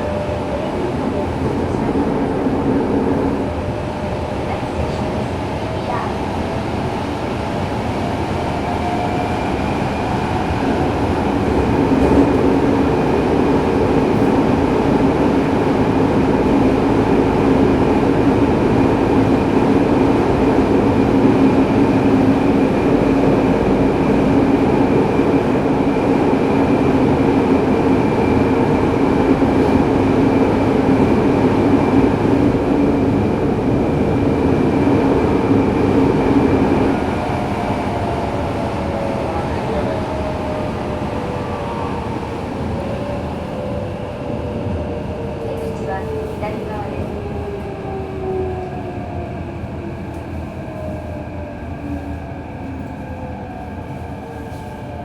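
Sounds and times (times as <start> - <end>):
subway car rumble and wheel noise: 0.0 - 55.0.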